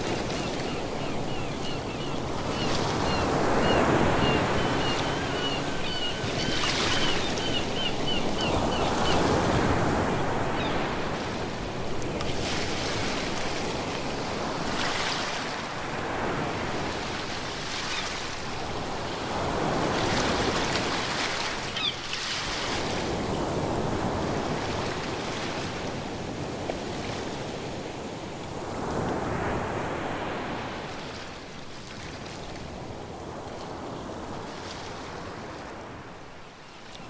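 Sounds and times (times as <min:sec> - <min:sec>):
ocean waves breaking: 0:00.0 - 0:17.6.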